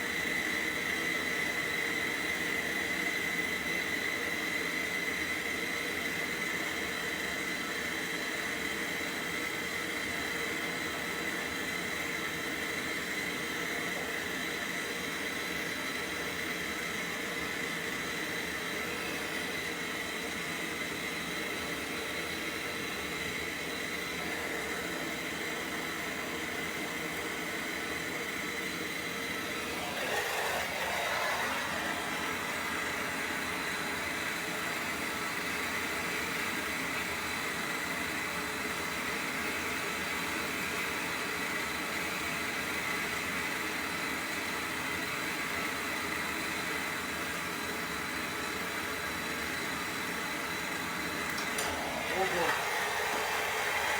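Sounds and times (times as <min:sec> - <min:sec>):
gas torch hissing with whistle: 0:24.1 - 0:36.6, 0:51.3 - 0:53.9.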